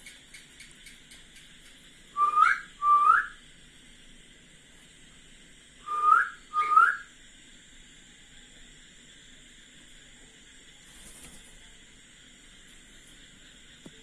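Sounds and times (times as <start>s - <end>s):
rising whistled notes: 2.1s - 3.4s, 5.8s - 7.1s.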